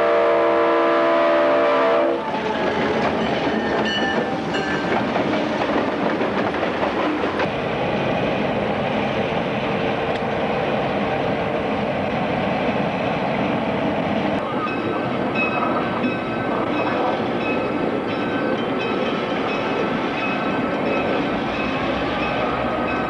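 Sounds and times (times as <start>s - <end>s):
diesel locomotives running: 0.0s - 23.0s
wheels clattering over rail joints: 2.3s - 7.6s.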